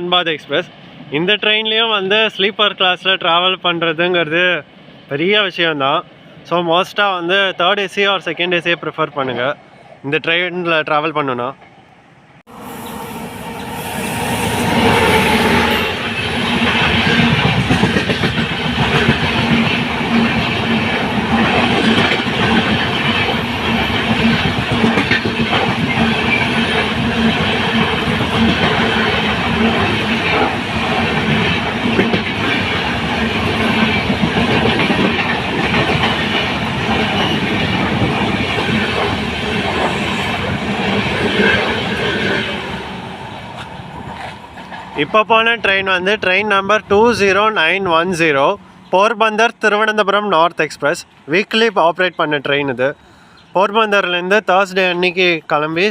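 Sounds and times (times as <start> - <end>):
train wheels clattering over rails: 14.6 - 45.0.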